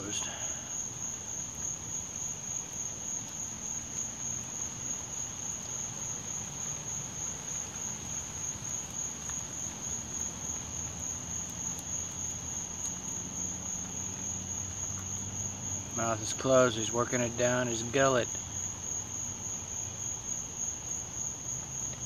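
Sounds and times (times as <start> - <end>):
night insects trilling: 0.0 - 22.0.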